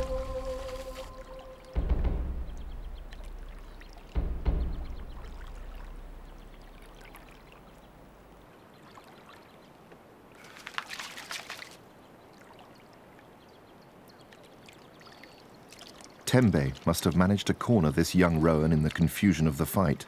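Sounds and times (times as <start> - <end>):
shallow water sloshing: 0.0 - 9.6
water splashing: 0.0 - 13.3, 14.3 - 19.8.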